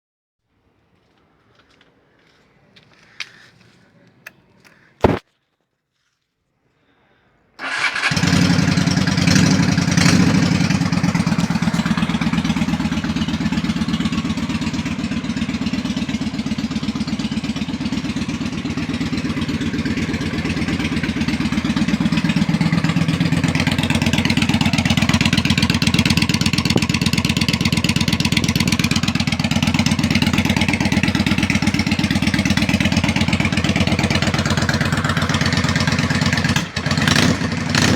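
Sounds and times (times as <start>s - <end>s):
loud thump: 5.0s - 5.2s
motorcycle engine idling: 7.6s - 37.9s.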